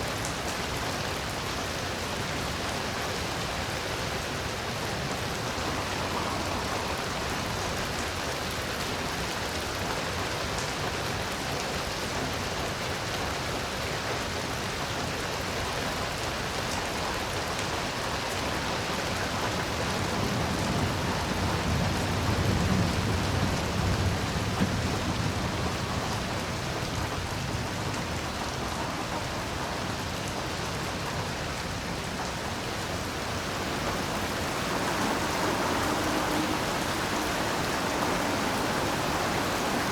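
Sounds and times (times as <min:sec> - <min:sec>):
heavy rain: 0:00.0 - 0:39.9
thunder rumble: 0:32.4 - 0:39.9.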